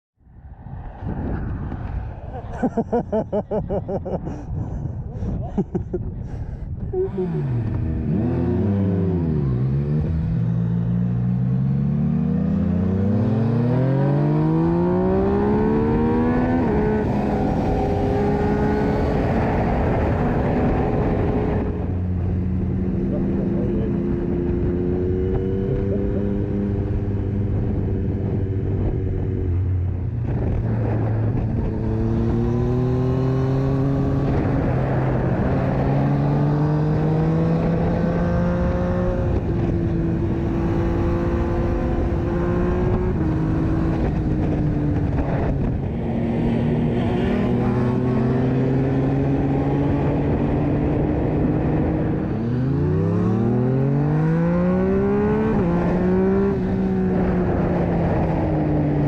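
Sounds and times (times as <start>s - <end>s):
motorcycle engine accelerating: 6.8s - 59.0s.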